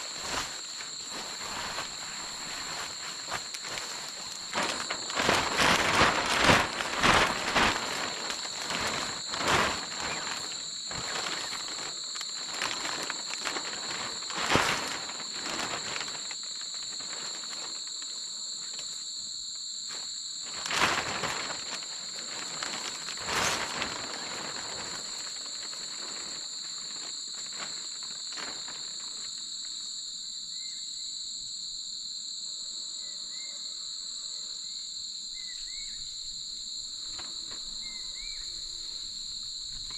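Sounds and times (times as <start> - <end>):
rustling and handling things: 0.0 - 19.2, 19.8 - 29.8
insects calling shrilly: 0.0 - 39.9.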